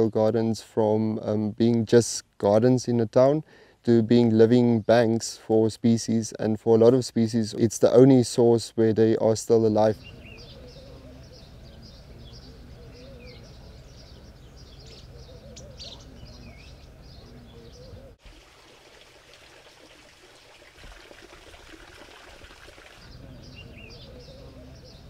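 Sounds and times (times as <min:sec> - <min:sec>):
small birds chirping: 0:09.7 - 0:18.2, 0:22.6 - 0:25.0.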